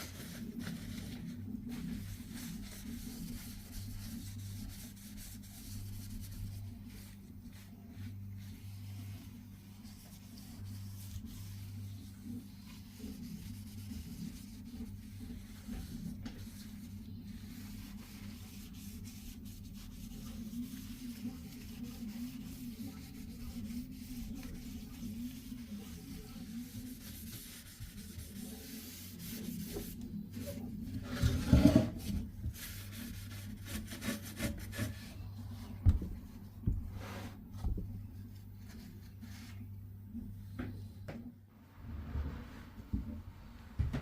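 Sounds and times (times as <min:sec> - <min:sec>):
soft rubbing against surface: 0:00.0 - 0:41.1
low hum: 0:41.4 - 0:44.0.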